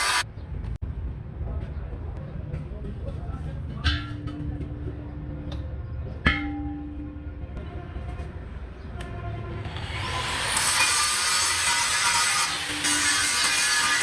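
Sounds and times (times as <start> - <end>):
rising hiss: 0.0 - 0.2.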